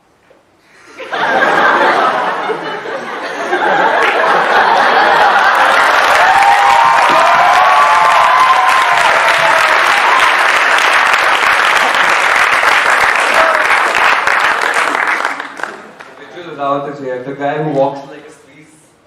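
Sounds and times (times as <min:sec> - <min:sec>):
audience laughing: 0:00.8 - 0:06.3, 0:11.6 - 0:12.5
audience applauding: 0:03.5 - 0:16.5
cheers and whoops: 0:05.2 - 0:10.9, 0:13.2 - 0:14.0.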